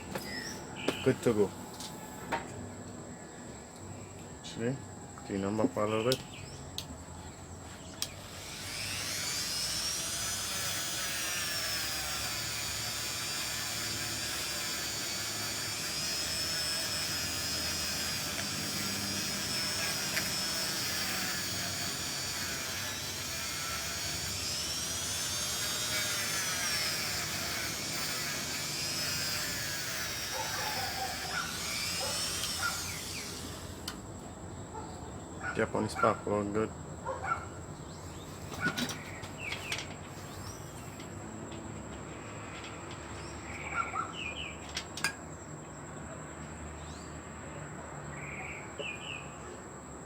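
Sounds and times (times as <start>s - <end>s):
rotary tool whining: 0.0s - 2.5s, 7.8s - 34.2s, 38.0s - 44.0s.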